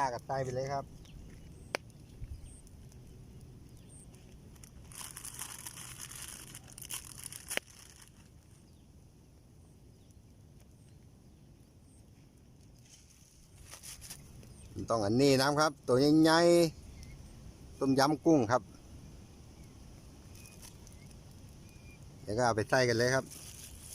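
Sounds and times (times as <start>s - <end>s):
quiet outdoor background: 0.0s - 23.9s
plastic packet rustling: 4.5s - 8.5s, 23.2s - 23.9s.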